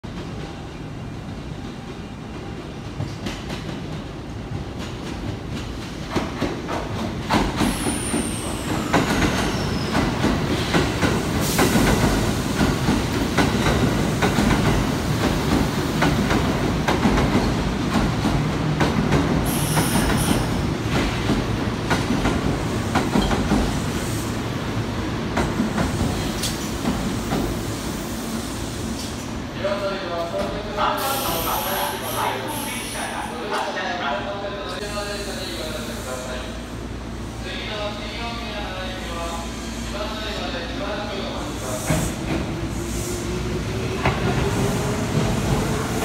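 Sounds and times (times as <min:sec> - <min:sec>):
high wheel squeal: 0:07.8 - 0:09.9.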